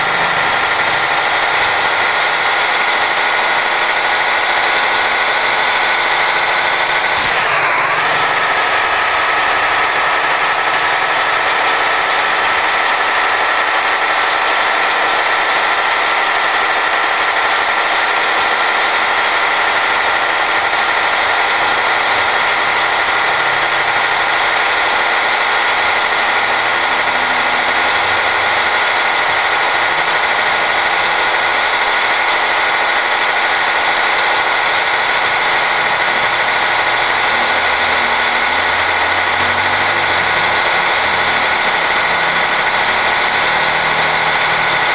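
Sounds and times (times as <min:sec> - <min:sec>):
road noise: 0:00.0 - 0:44.9
truck engine drone: 0:00.0 - 0:44.9
whining tones: 0:00.0 - 0:44.9.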